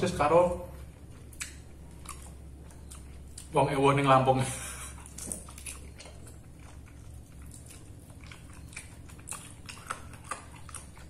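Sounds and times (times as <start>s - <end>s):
low steady hum: 0.0s - 11.0s
person chewing with crunches: 0.7s - 3.6s, 4.6s - 11.0s.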